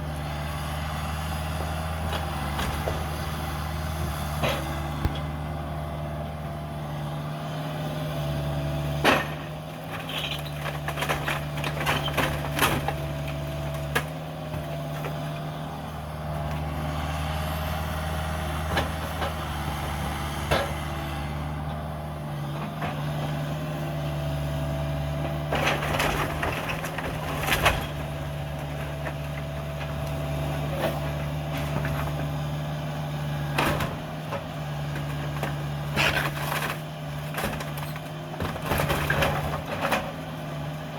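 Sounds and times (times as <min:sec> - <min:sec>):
mini excavator running: 0:00.0 - 0:40.9
debris knocking and cracking: 0:09.0 - 0:15.2.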